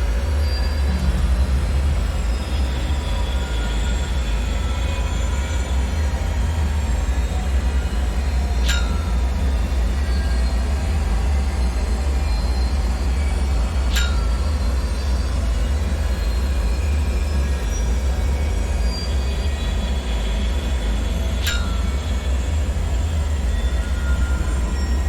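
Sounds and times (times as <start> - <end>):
deep rumble: 0.0 - 18.8, 20.9 - 25.0
faint high metallic squeals: 0.0 - 25.0
sharp ringing clicks: 21.4 - 22.0.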